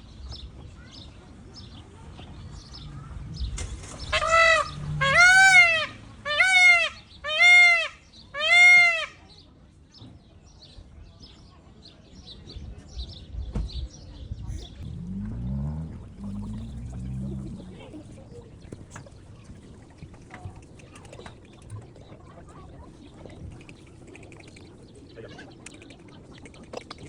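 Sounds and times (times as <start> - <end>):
peacock calling: 4.0 - 9.2.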